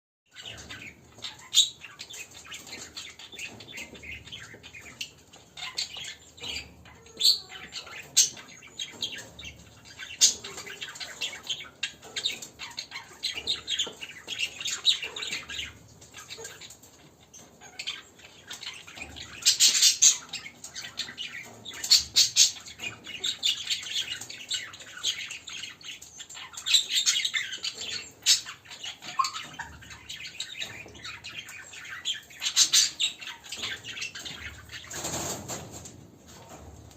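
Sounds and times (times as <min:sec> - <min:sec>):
caged birds chirping and squawking: 0:00.3 - 0:36.9.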